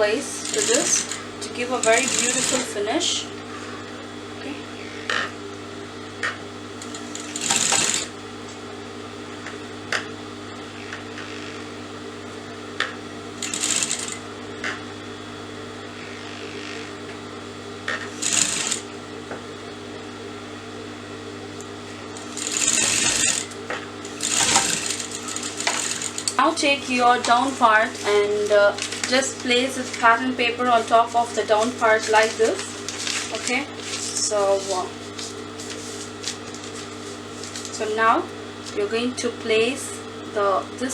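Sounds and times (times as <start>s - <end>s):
sewing machine stitching: 0.2s - 2.9s, 6.8s - 8.1s, 13.4s - 14.2s, 17.9s - 18.9s, 22.2s - 26.7s.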